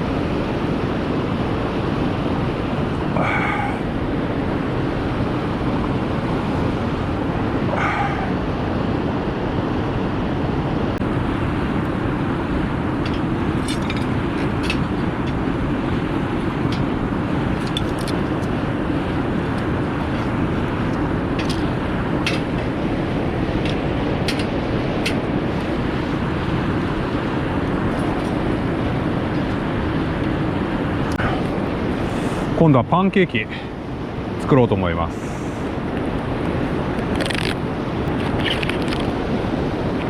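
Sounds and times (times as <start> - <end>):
steady rushing noise: 0.0 - 40.0.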